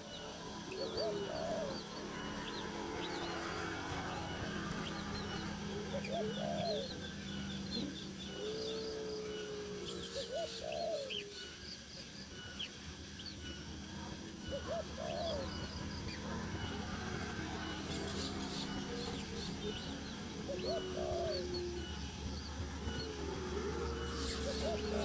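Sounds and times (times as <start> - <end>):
faint steady hum: 0.0 - 25.0
low arching bird calls: 0.0 - 25.0.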